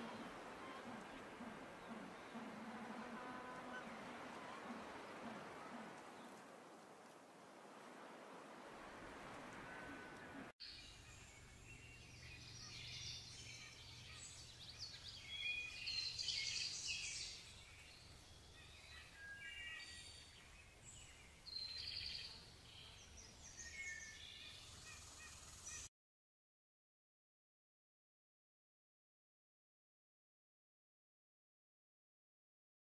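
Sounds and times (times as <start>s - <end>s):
small birds chirping: 10.2s - 25.9s.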